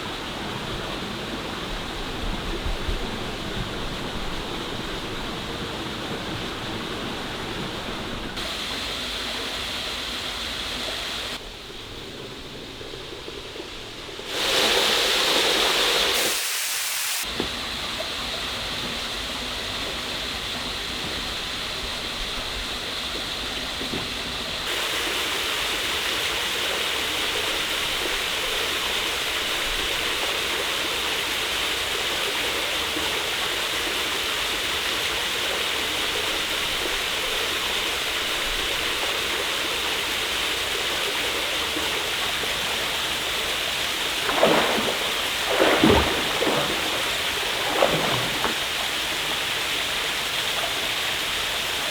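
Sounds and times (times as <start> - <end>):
waterfall rushing: 41.9 - 51.6.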